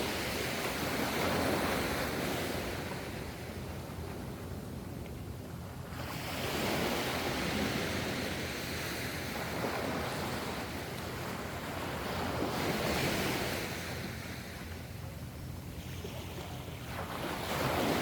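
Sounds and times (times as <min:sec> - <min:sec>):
ocean waves breaking: 0:05.5 - 0:18.0.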